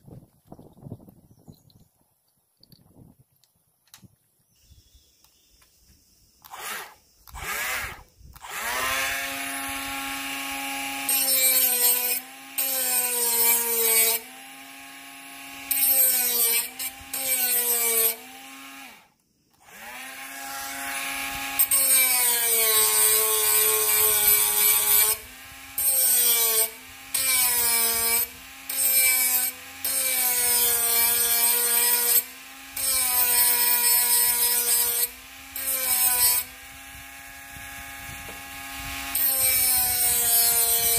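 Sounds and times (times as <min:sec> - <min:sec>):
angle grinder motor whine: 0:06.4 - 0:40.9
grinder rasping hiss: 0:19.6 - 0:40.9.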